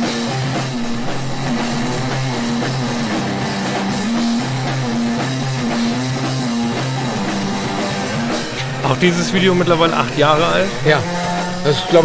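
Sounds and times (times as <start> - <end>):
drum kit: 0.0 - 12.0
electric guitar riff: 0.0 - 12.0.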